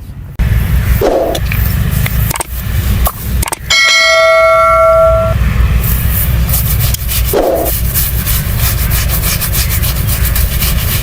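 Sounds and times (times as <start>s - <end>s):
steady low hum: 0.0s - 11.0s
bell-like metallic ring: 3.7s - 5.4s
razor scraping skin: 6.6s - 11.0s.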